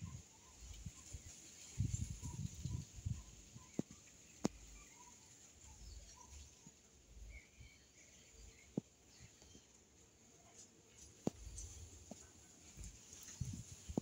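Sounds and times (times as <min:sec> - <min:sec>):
bird chirps: 0:00.0 - 0:09.8.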